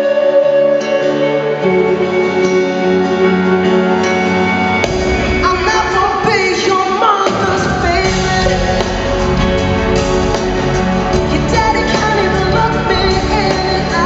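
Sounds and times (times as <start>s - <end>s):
guitar and keyboard chords: 0.0s - 14.0s
drums and bass: 4.1s - 14.0s.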